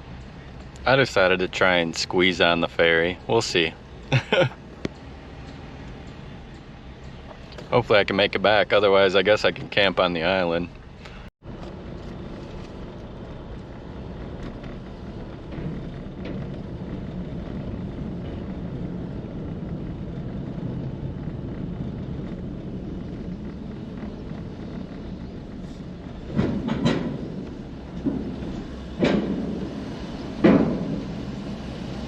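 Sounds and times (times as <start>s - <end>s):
vehicle engine rumbling: 0.0s - 32.0s
clatter of knocks: 23.0s - 31.8s.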